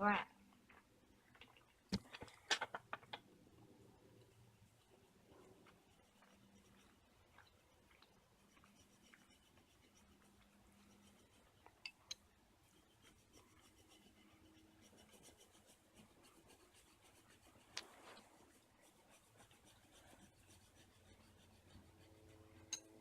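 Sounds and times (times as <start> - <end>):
pen scratching on paper: 4.2 - 7.2, 8.2 - 11.6, 12.6 - 23.0.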